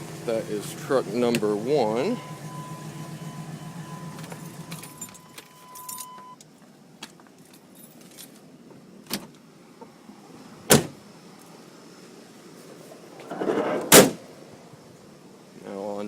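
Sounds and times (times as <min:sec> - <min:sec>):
truck engine idling: 0:00.0 - 0:06.0
steady high tone: 0:01.7 - 0:06.3
keys jingling: 0:04.2 - 0:06.3, 0:07.5 - 0:08.4
truck door slamming: 0:10.7 - 0:11.0, 0:13.2 - 0:14.3.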